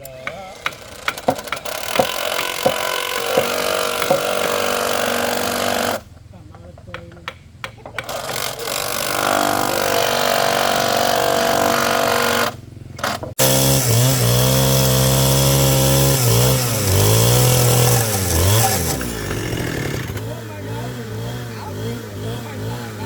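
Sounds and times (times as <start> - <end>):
power tool motor running: 0.6 - 6.1, 8.0 - 23.0
knocks: 6.6 - 8.4.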